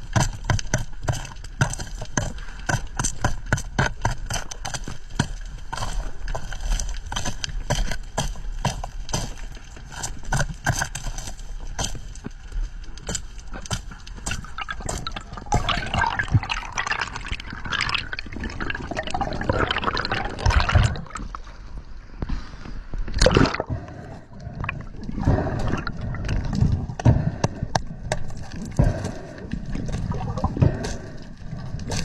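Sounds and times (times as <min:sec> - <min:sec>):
water splashing and trickling: 0:14.1 - 0:21.8, 0:23.0 - 0:27.1, 0:28.2 - 0:32.0.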